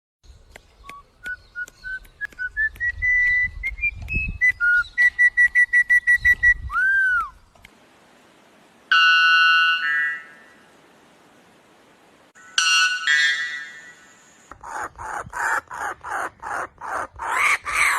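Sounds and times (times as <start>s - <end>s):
bird whistling: 0.8s - 7.4s
faint hiss: 7.2s - 12.5s, 13.6s - 14.5s.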